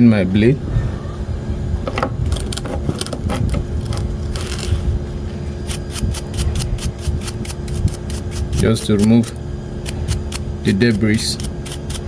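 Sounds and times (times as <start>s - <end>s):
scraping strokes on clipper blade: 5.6s - 12.0s.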